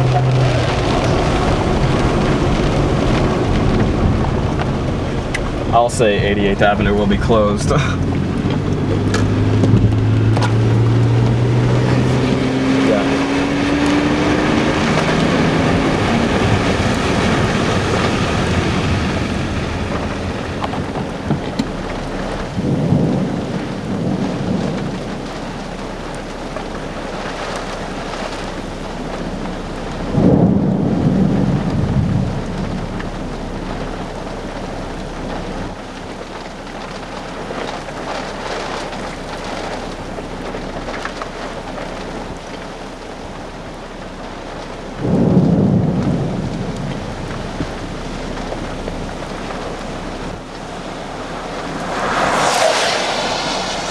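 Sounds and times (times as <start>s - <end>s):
rising pitched hum: 0.0s - 24.2s, 45.0s - 53.9s
low thunder rolls: 0.0s - 43.5s, 44.8s - 53.9s
rain falling steadily: 0.0s - 53.9s.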